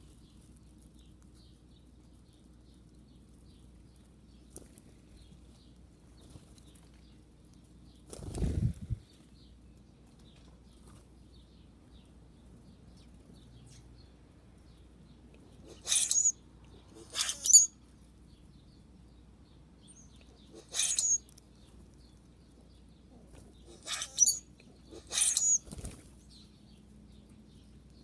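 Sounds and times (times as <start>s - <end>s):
small birds chirping: 0.0s - 28.0s
bird wings flapping: 8.1s - 9.0s, 25.6s - 26.2s.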